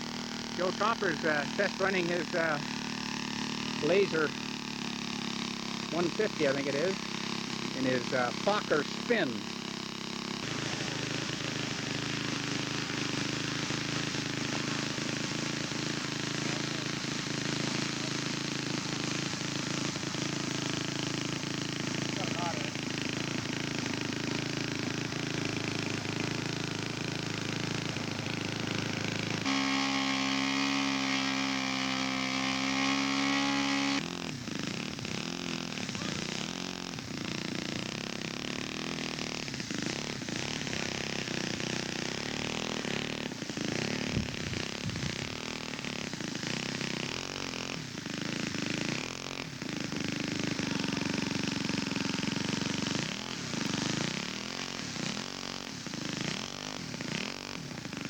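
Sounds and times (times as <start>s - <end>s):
model aircraft engine running: 0.0s - 58.0s.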